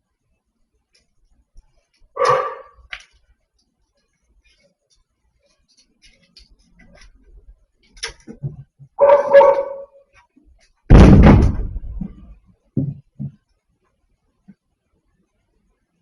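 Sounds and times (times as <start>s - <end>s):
loud slam: 10.9s - 12.0s.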